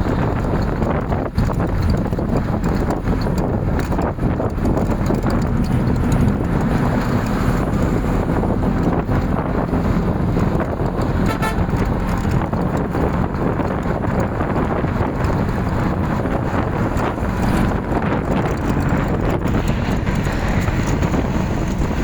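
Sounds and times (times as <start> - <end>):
wind rumble on microphone: 0.0 - 22.0
short horn toot: 11.2 - 11.7.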